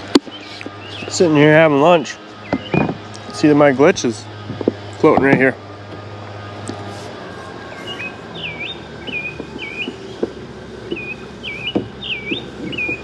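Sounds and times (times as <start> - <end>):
songbird whistling: 0.3 - 1.2, 2.4 - 3.0, 7.7 - 10.3, 10.9 - 13.0.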